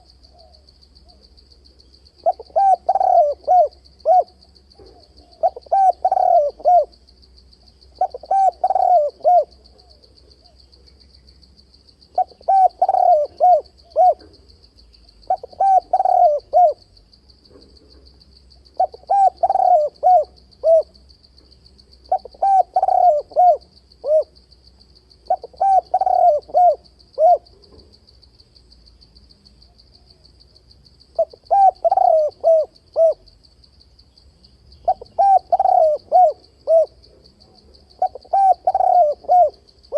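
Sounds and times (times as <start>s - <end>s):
dove cooing: 2.2s - 7.0s, 8.0s - 10.6s, 12.1s - 14.4s, 15.2s - 16.9s, 18.8s - 21.0s, 22.1s - 24.3s, 25.3s - 27.7s, 31.2s - 33.3s, 34.8s - 37.2s, 38.0s - 39.9s.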